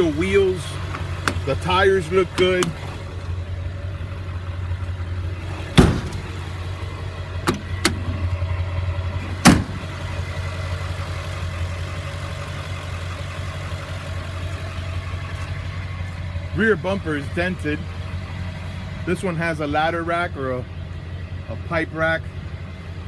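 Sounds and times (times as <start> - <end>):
diesel engine idling: 0.0 - 23.0
sharp knocks: 5.8 - 6.3.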